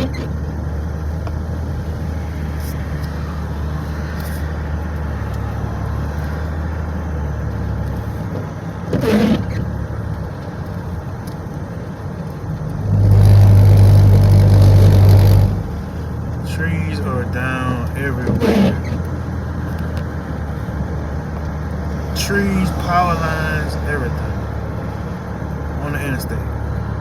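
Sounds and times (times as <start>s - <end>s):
car cabin road and engine noise: 0.0s - 27.0s
loud low drone: 12.8s - 18.8s.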